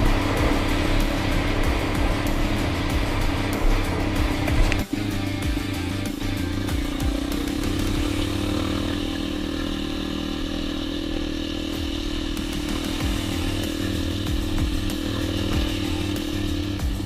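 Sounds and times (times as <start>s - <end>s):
dirt bike engine buzzing: 0.0s - 17.0s.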